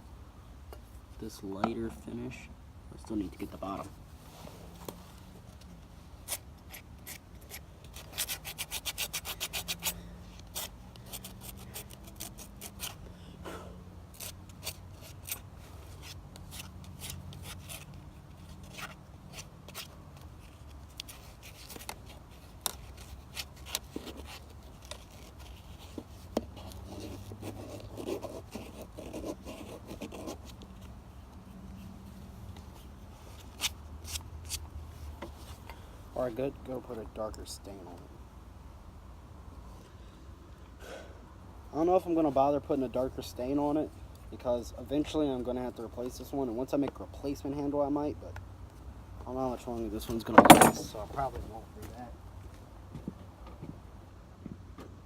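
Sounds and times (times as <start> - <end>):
sandpaper rubbing on wood: 6.3 - 13.0.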